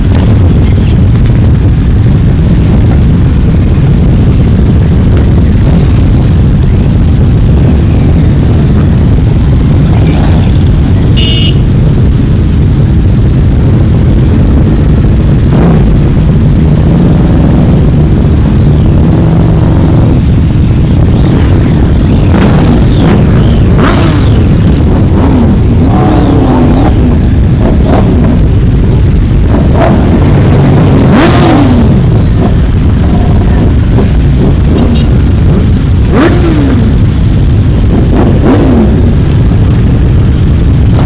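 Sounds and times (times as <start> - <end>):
motorcycles rumbling and revving: 0.0 - 41.0
short high-pitched beep: 11.1 - 11.6.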